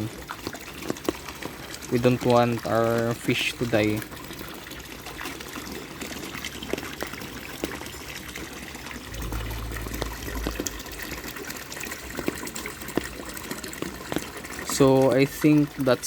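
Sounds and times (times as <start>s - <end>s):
water drips: 0.0s - 16.0s
water splashing and trickling: 0.0s - 16.0s
low rumble: 9.1s - 12.4s.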